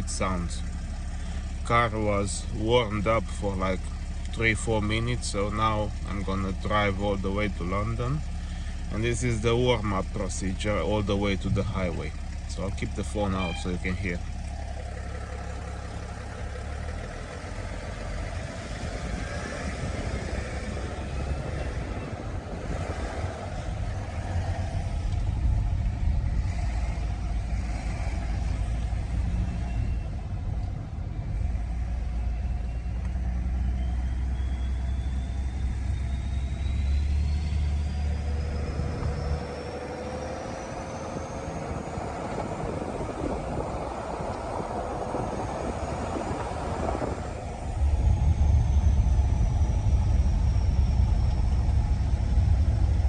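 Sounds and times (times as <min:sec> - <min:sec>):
diesel engine drone: 0:00.0 - 0:53.0
turbo whistle rising: 0:13.3 - 0:14.1, 0:31.9 - 0:42.4.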